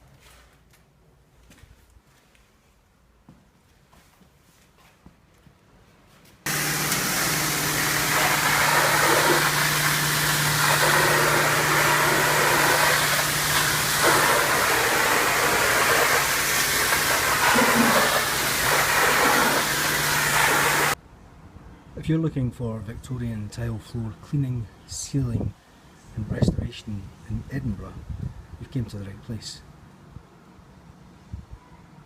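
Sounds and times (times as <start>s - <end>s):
floor cleaning machine motor hum: 6.5s - 21.0s
loud hiss: 6.5s - 21.0s.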